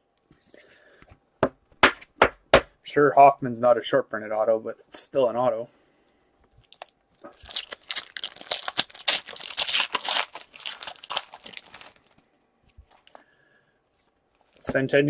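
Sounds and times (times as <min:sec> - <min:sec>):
card pack wrapper crinkling: 0:06.6 - 0:13.2.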